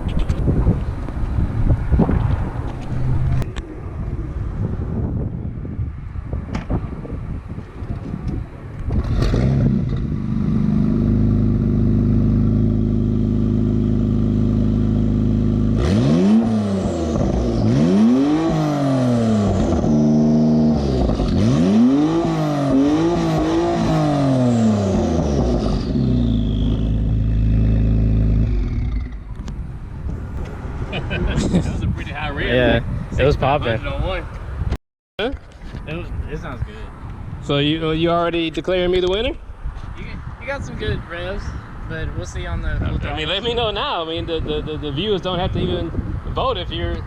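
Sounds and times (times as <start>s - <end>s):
car engine starting: 8.8s - 31.2s
car engine revving and idling: 8.9s - 29.5s.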